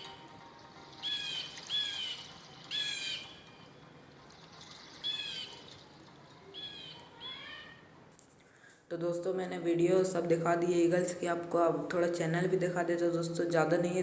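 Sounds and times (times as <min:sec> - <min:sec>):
bird harsh calls: 0:01.0 - 0:03.6, 0:04.6 - 0:07.9.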